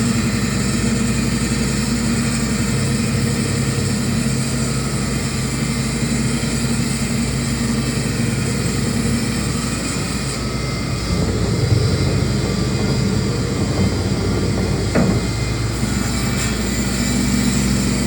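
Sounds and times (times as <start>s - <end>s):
cnc router drone: 10.4s - 17.0s
thin high machine whine: 10.5s - 17.4s.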